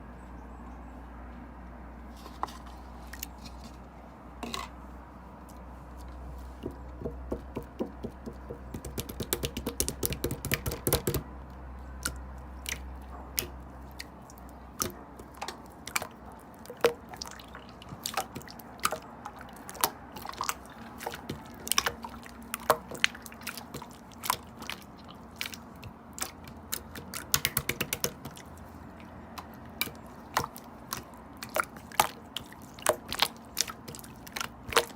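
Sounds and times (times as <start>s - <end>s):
slime squished with sticky clicks: 26.2s - 28.5s.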